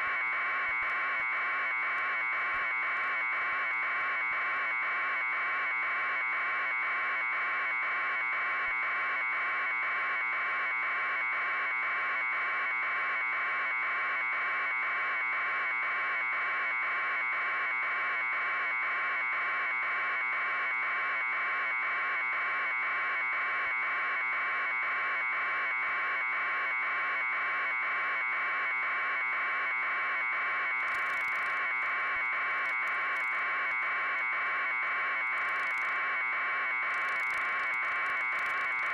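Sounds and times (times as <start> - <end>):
static crackle: 30.8 - 31.7, 32.4 - 34.3, 35.0 - 38.9.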